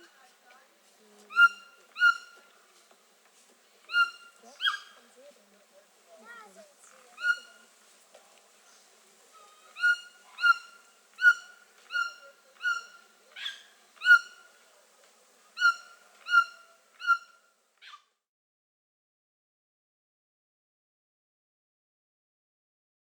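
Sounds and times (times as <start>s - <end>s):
bird calling: 0.0s - 2.9s, 3.7s - 5.4s, 6.1s - 7.7s, 8.6s - 18.0s.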